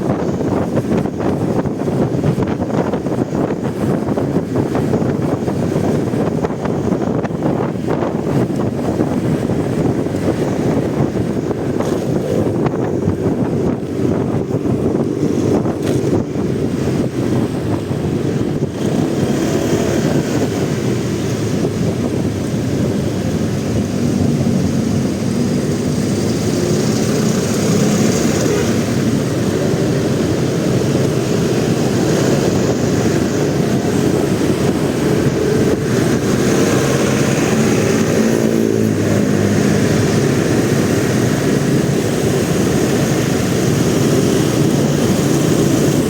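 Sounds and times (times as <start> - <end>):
motorcycle engine running: 0.0 - 46.0
wind buffeting microphone: 0.0 - 46.0.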